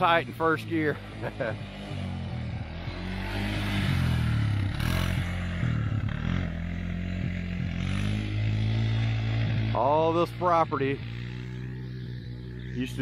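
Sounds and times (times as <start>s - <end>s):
engine revving hard: 1.0s - 10.2s.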